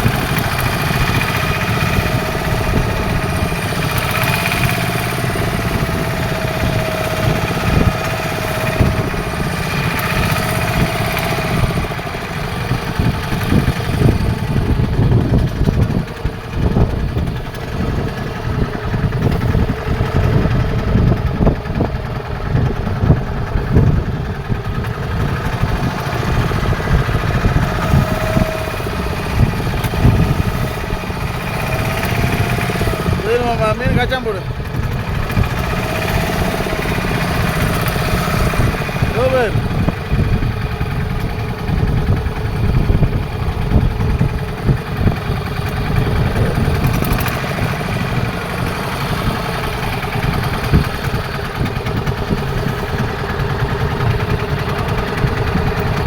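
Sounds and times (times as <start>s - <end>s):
boat engine drone: 0.0s - 56.0s.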